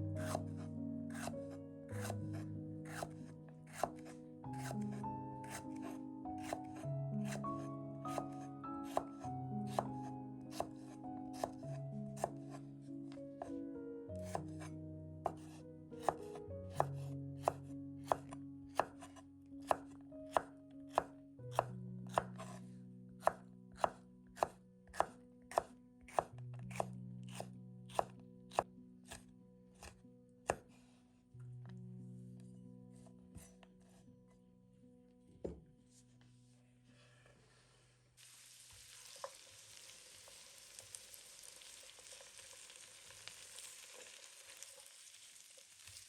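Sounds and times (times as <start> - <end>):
soft background music: 0.0 - 37.1
knife chopping on cutting board: 0.2 - 0.5, 1.1 - 1.3, 2.0 - 7.4, 8.1 - 12.6, 14.2 - 14.7, 15.3 - 22.6, 23.2 - 29.2, 29.8 - 30.8.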